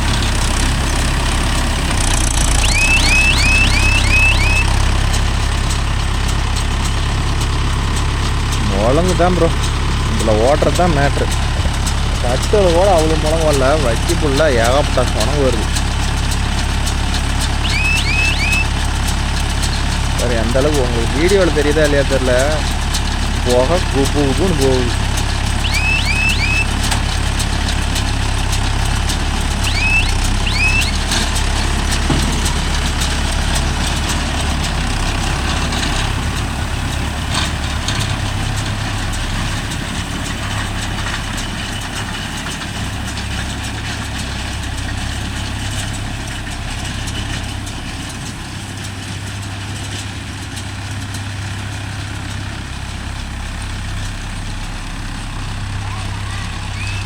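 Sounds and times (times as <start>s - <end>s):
tractor diesel engine droning: 0.0s - 57.0s
high rising chirps: 2.4s - 4.8s, 17.6s - 18.8s, 25.6s - 26.8s, 29.6s - 31.1s.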